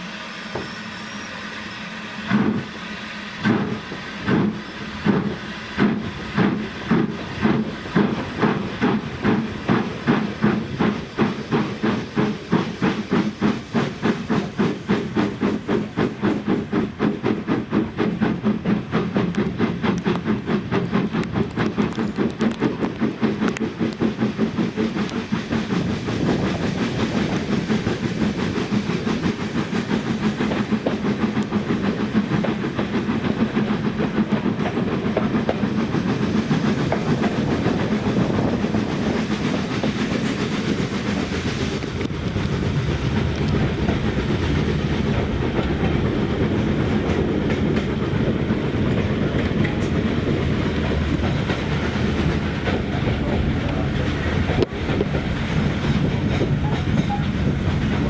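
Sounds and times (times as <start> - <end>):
wheels clicking on rails: 3.4 - 58.0.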